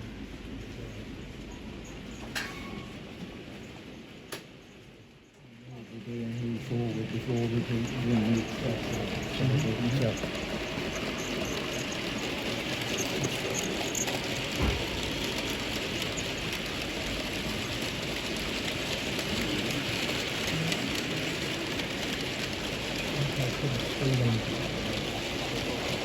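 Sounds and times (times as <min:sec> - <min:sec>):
model trains running: 0:00.0 - 0:26.0
faint voices: 0:05.4 - 0:15.3, 0:19.1 - 0:22.0, 0:22.7 - 0:26.0
hall hiss and hum: 0:05.7 - 0:17.7.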